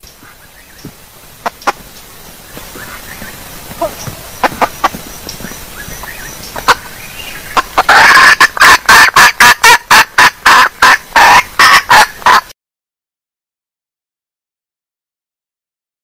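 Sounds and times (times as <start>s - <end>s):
steady hiss: 0.0s - 12.5s
hen clucking: 1.4s - 1.8s, 2.5s - 12.5s.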